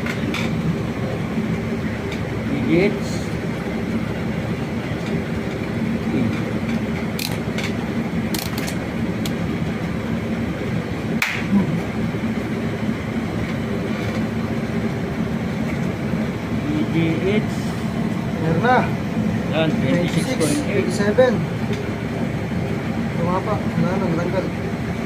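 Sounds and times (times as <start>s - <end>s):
droning background hum: 0.0s - 25.0s.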